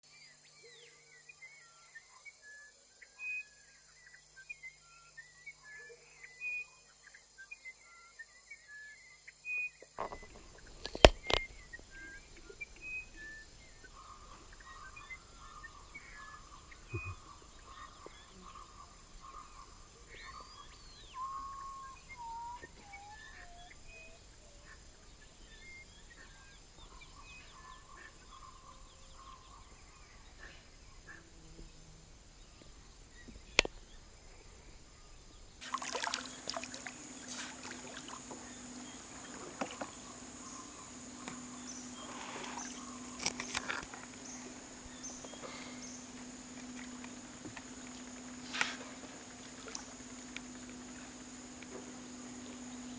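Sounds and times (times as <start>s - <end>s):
birds chirping and whistling: 7.5s - 31.2s, 36.1s - 49.0s
high-pitched insect drone: 34.2s - 52.9s.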